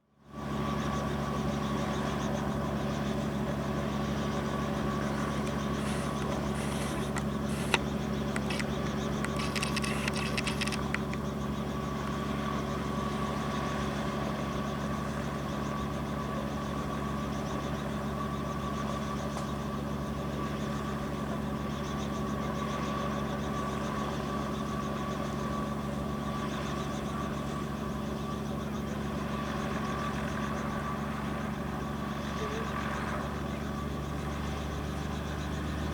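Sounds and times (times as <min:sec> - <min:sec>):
helicopter engine running: 0:00.2 - 0:35.9
sharp click: 0:05.4 - 0:11.2.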